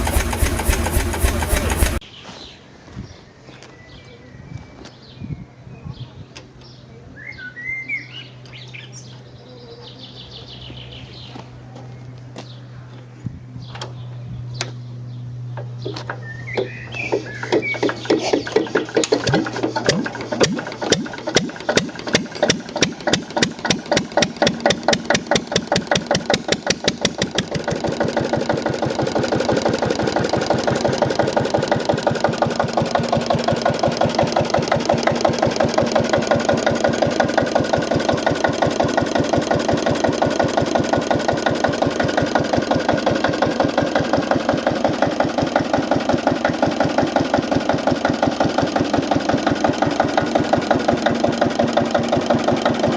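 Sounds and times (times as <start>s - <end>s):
diesel engine starting: 0.0s - 2.0s, 15.8s - 52.9s.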